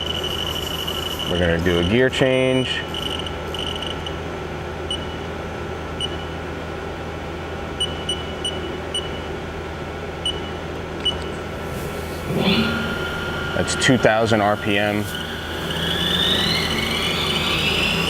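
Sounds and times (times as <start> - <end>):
machining center humming: 11.1 - 18.0.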